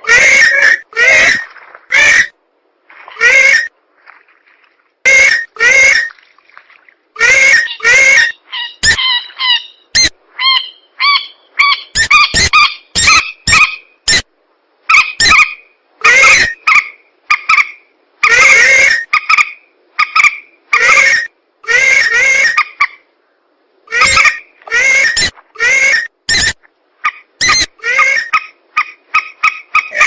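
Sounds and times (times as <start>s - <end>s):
swamp birds honking calls: 0.0s - 2.3s.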